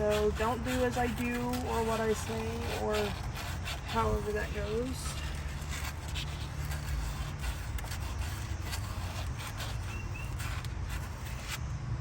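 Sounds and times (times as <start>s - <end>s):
sandpaper rubbing on surface: 0.0s - 11.6s.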